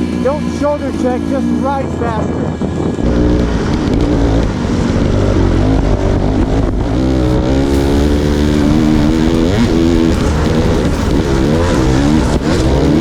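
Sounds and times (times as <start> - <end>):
dirt bike engine revving: 2.7 - 13.0.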